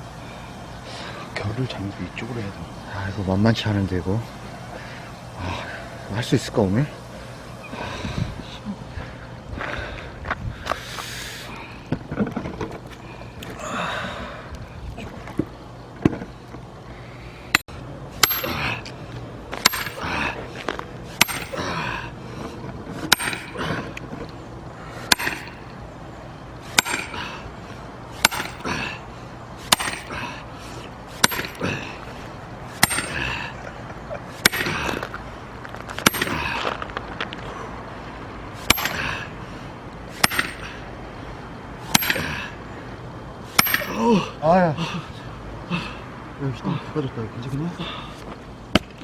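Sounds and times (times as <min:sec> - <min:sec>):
axe chopping log: 0:19.6 - 0:20.2, 0:21.2 - 0:21.7, 0:23.0 - 0:23.6, 0:25.1 - 0:25.6, 0:26.7 - 0:27.2, 0:28.2 - 0:28.7, 0:29.7 - 0:30.2, 0:31.2 - 0:31.8, 0:32.8 - 0:33.3, 0:34.4 - 0:35.1, 0:36.0 - 0:36.6, 0:40.2 - 0:40.7, 0:41.9 - 0:42.3, 0:43.6 - 0:44.1.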